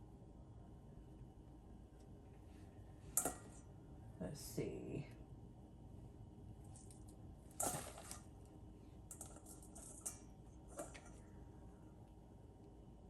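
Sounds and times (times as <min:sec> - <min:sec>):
rustling: 0:06.7 - 0:08.4.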